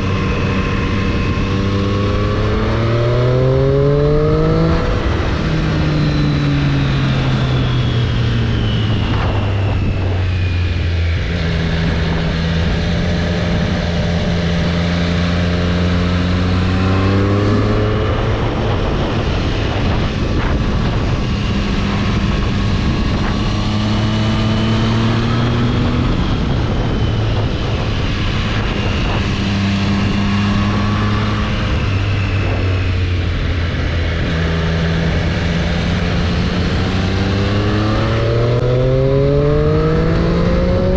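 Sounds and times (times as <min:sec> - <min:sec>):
motorcycle engine revving: 0:00.0 - 0:08.3, 0:11.0 - 0:40.9
rush of noise: 0:00.0 - 0:40.9.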